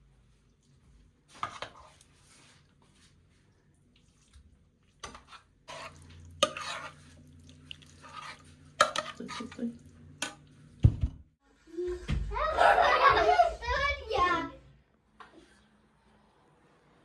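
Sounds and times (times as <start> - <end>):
utensils clinking and scraping in a bowl: 0.5 - 10.7.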